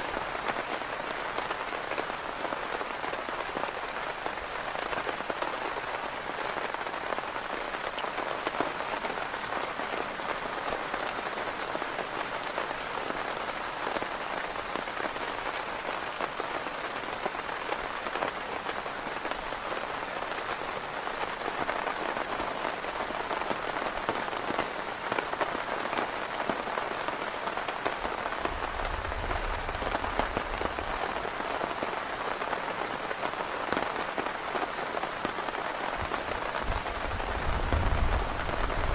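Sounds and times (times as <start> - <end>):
heavy rain on a tent: 0.0 - 38.9.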